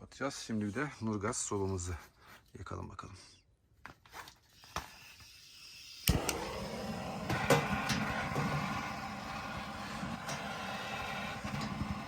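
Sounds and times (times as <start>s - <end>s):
faint hiss of gas: 4.4s - 12.0s
gas burner rushing: 5.0s - 12.0s
gas heater igniter clicks: 6.0s - 12.0s.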